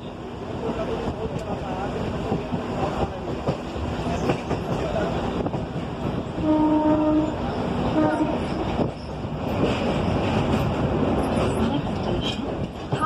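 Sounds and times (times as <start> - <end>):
train wheels clacking: 0.6 - 13.0
train horn: 6.4 - 8.6.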